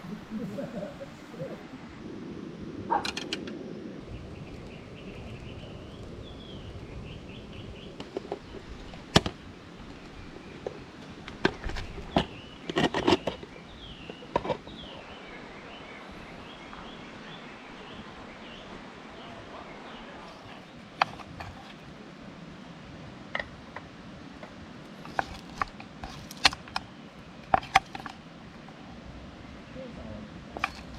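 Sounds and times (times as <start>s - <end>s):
small birds chirping: 0.0s - 1.9s, 2.9s - 22.0s.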